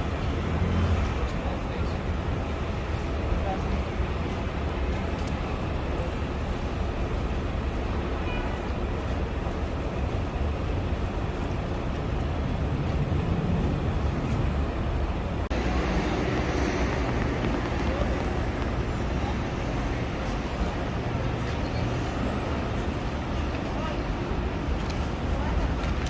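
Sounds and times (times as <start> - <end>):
low rumble of vehicles: 0.0 - 26.0.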